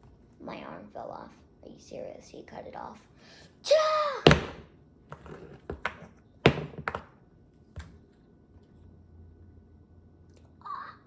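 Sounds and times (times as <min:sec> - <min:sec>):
plastic figures knocking together: 0:04.2 - 0:04.7, 0:05.7 - 0:07.1.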